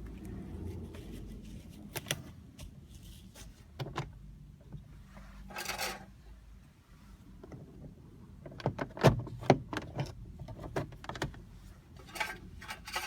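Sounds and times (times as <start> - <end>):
scrape or rustle: 0.2 - 3.7, 5.1 - 6.1.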